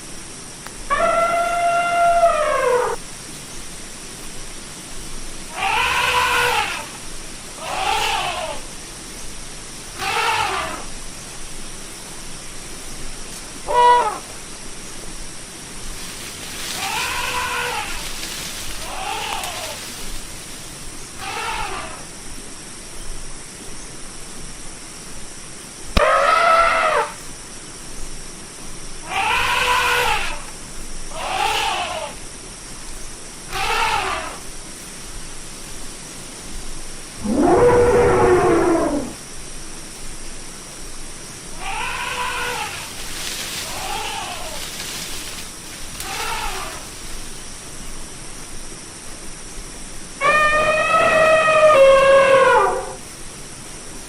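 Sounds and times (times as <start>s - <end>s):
steady hiss: 0.0s - 54.0s
elephant squeals: 0.9s - 3.0s, 5.5s - 6.9s, 7.6s - 8.6s, 10.0s - 10.9s, 13.7s - 14.2s, 16.7s - 19.9s, 21.2s - 22.0s, 26.0s - 27.2s, 29.1s - 30.4s, 31.1s - 32.1s, 33.5s - 34.4s, 41.6s - 45.2s, 46.0s - 46.9s, 50.2s - 53.0s
elephant trumpeting: 0.9s - 3.0s, 5.5s - 7.0s, 7.6s - 8.6s, 10.0s - 10.8s, 16.7s - 20.0s, 21.2s - 22.0s, 26.0s - 27.2s, 29.1s - 30.4s, 31.1s - 32.2s, 33.5s - 34.4s, 37.2s - 39.2s, 41.6s - 45.2s, 46.0s - 46.9s, 50.2s - 53.0s.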